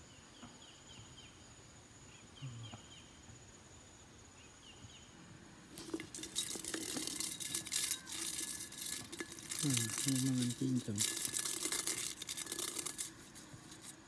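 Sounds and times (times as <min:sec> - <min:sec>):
high insect drone: 0:00.6 - 0:14.0
rustling and crackling: 0:05.7 - 0:14.0.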